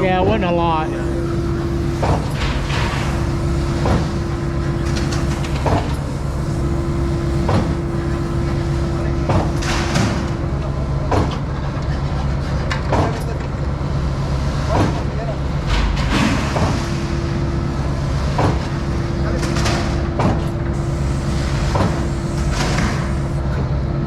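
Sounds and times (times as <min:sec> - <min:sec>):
concrete pump engine running: 0:00.0 - 0:24.0
pump clunking: 0:00.3 - 0:09.0, 0:20.7 - 0:23.4.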